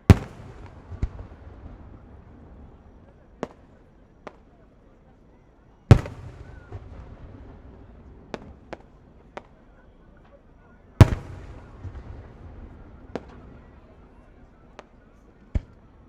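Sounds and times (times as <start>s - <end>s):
sharp firework pops: 0.0s - 1.4s, 4.3s - 4.5s, 5.9s - 7.5s, 11.0s - 12.4s
firework booms with rumble: 0.0s - 2.8s, 5.9s - 8.9s, 11.0s - 13.5s.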